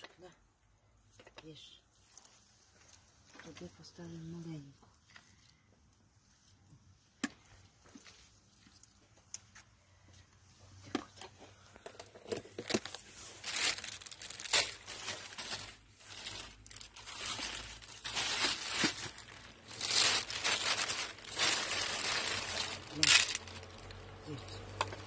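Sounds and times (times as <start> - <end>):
plastic packaging crinkling: 11.8 - 25.0.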